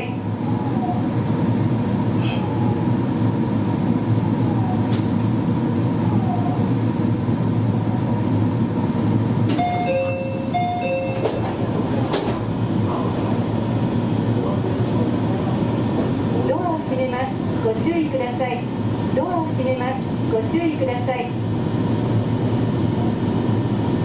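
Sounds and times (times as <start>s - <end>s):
train wheels rumbling: 0.0s - 24.0s
two-tone signal: 9.5s - 11.4s.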